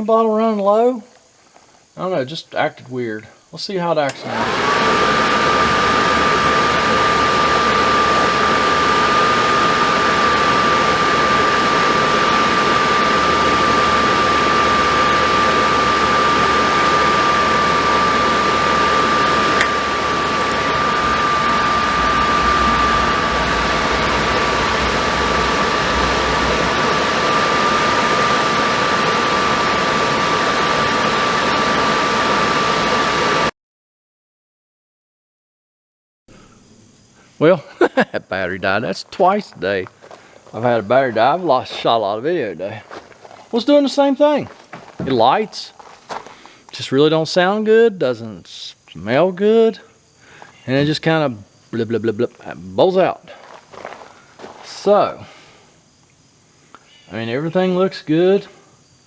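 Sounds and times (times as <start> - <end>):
steady high whine: 3.6 - 33.5, 36.3 - 49.7
furnace blower fan rushing air: 4.0 - 33.5, 37.4 - 46.7.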